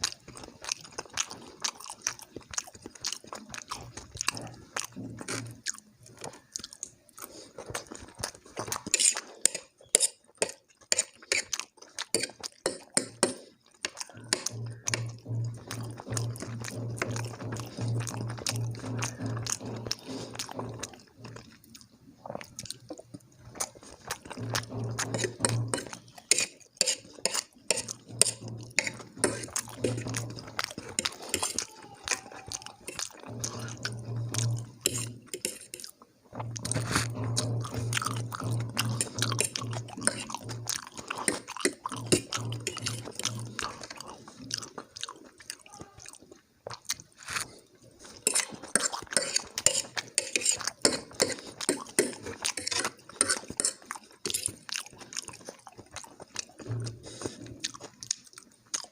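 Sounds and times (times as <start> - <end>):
wet mouth clicks: 0.0 - 20.8
person chewing food: 0.0 - 58.9.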